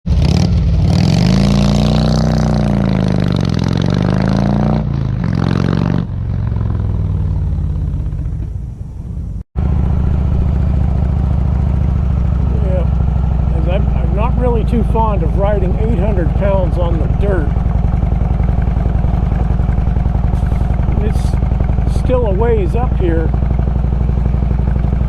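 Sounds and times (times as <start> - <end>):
motorcycle engine revving: 0.1 - 25.0.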